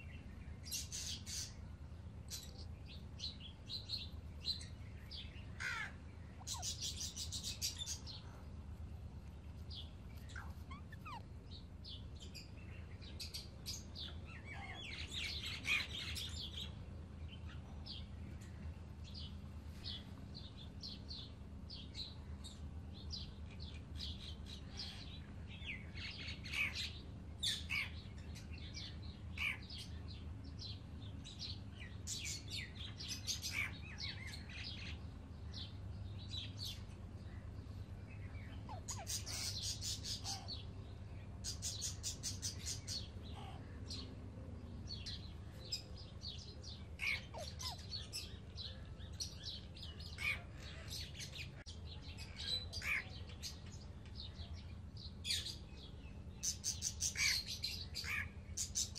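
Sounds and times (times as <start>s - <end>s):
low hum: 0.0s - 56.4s
parrots chirping: 5.6s - 8.1s, 10.1s - 11.3s, 38.6s - 40.5s, 47.0s - 47.8s.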